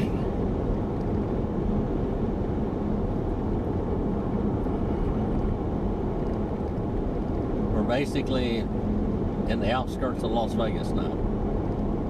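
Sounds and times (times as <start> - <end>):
car road noise inside cabin: 0.0 - 12.0
faint constant hum: 0.0 - 12.0.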